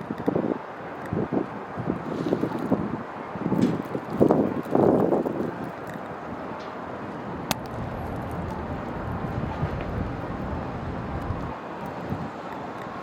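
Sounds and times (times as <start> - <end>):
city street noise: 0.0 - 13.0
vehicle rumbling on snowy road: 7.4 - 12.4.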